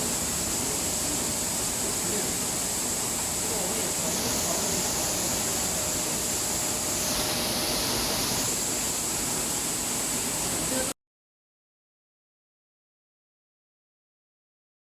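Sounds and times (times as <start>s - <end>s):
high machine whine: 0.0s - 10.9s
mill machinery running: 0.0s - 10.9s.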